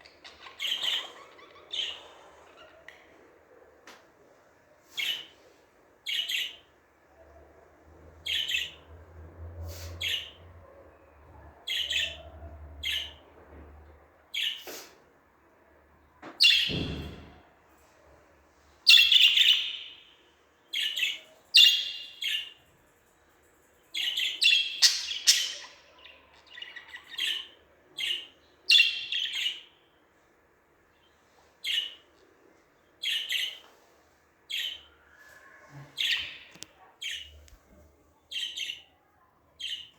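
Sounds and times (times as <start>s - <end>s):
budgerigar chirping: 18.9s - 20.0s, 20.8s - 22.4s, 24.0s - 29.7s.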